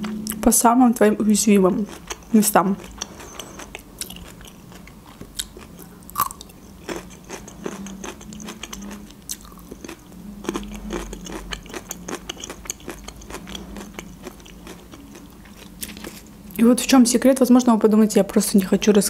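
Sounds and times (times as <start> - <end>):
chewing food: 1.1 - 16.3.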